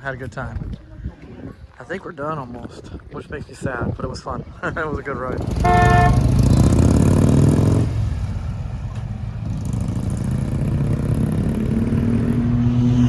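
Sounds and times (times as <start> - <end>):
motorcycle engines idling: 5.0 - 11.9.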